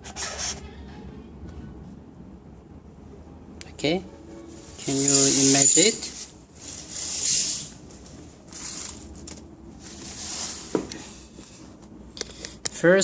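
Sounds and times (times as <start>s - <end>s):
soft rustling handling noise: 4.2s - 12.6s.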